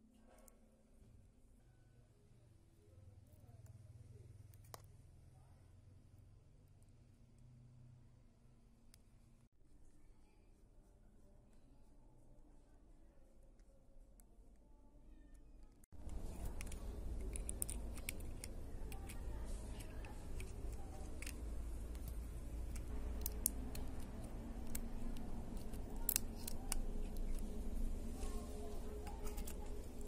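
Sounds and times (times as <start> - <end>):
low background rumble: 15.5 - 30.0.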